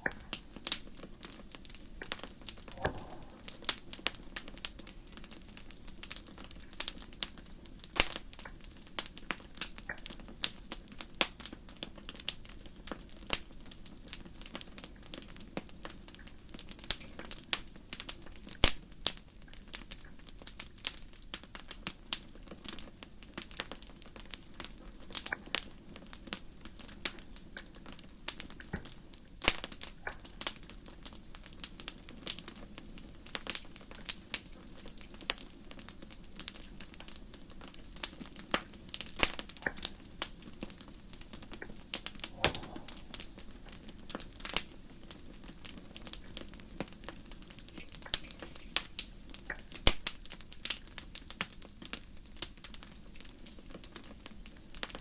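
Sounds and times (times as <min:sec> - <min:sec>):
fire crackling: 0:00.0 - 0:55.0
faint low rumble: 0:02.0 - 0:06.0, 0:41.5 - 0:45.0.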